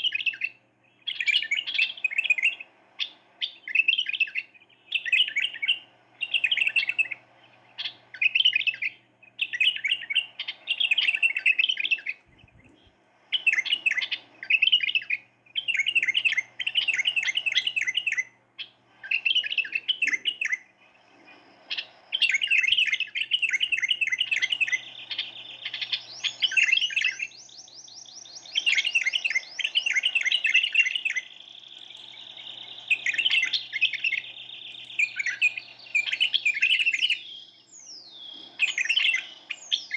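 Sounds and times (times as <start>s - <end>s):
birds chirping: 0.0s - 39.9s
bird rolling trills: 1.2s - 27.6s.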